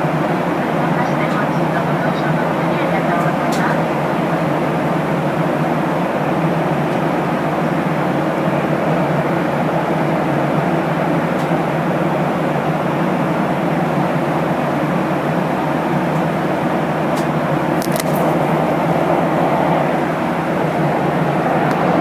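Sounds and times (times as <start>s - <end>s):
airplane engines and airflow roar: 0.0s - 22.0s
brief clicks: 17.2s - 18.4s.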